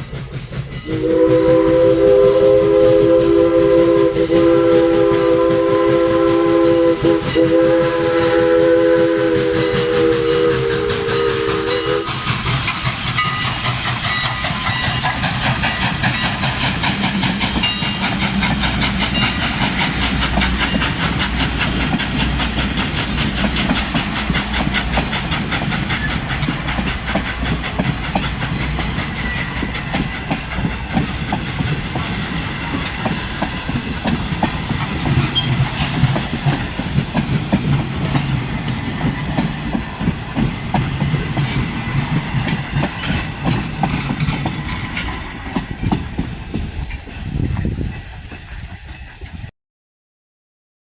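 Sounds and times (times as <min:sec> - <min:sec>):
steam hissing: 0:00.0 - 0:49.1
wheels clattering over rails: 0:12.1 - 0:48.8.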